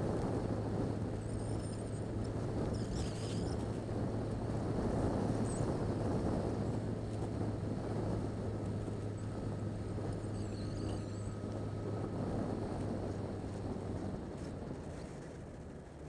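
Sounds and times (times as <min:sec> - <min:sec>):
motorcycle engine cruising: 0:00.0 - 0:16.0
wind rush over microphone: 0:00.0 - 0:16.0.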